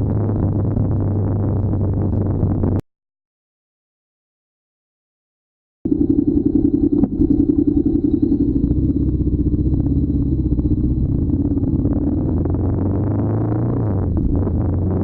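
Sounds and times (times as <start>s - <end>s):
motorcycle engine running: 0.0s - 2.8s, 5.9s - 15.0s.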